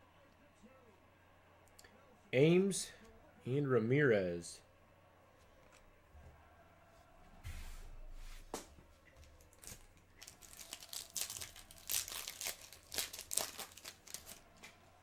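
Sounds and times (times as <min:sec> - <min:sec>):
foil wrapper tearing and crinkling: 0:09.2 - 0:14.4.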